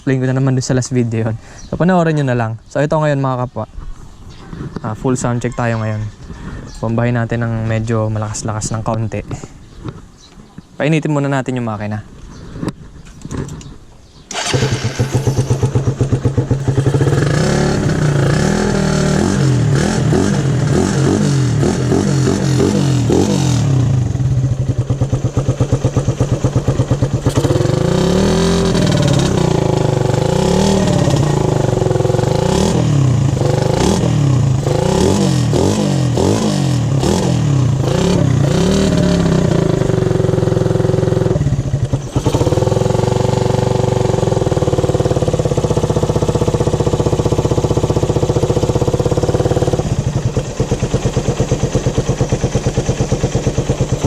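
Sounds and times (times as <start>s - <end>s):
motorcycle engine revving: 14.3s - 54.0s.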